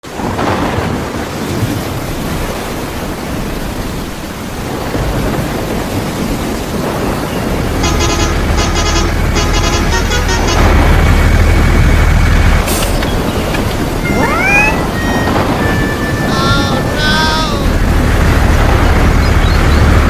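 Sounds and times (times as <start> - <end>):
rushing rain-like noise: 0.0 - 20.0
low engine drone: 7.5 - 20.0
vehicle horn blasts: 7.8 - 10.8.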